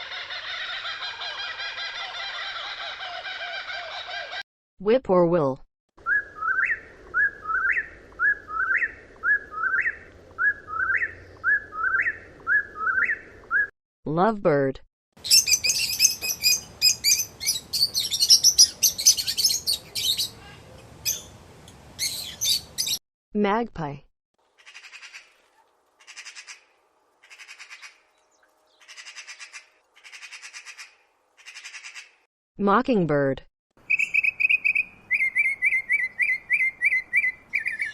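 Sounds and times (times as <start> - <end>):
magpie chattering: 33.9 - 37.9.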